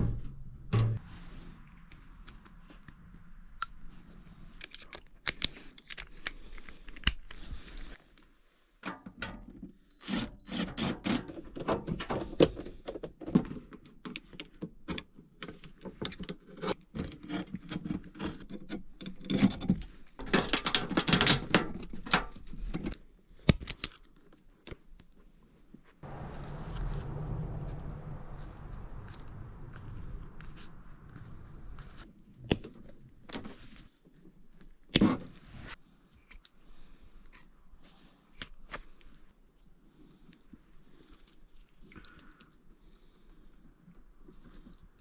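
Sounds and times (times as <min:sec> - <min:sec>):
rasping burst: 0:26.0 - 0:32.0.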